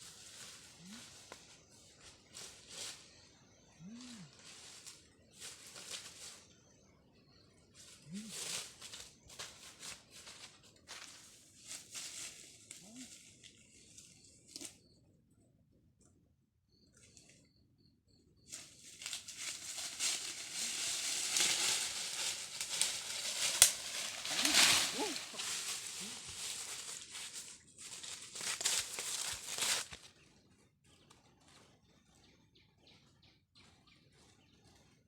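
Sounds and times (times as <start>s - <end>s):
loud rustling and crinkling: 18.6s - 30.1s.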